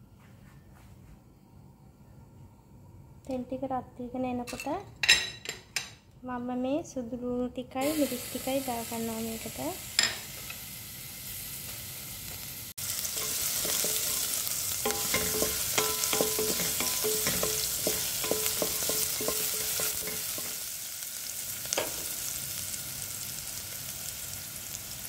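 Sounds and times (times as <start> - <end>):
garlic sizzling in hot oil: 7.8 - 25.0
spatula knocking against metal pot: 14.9 - 20.6.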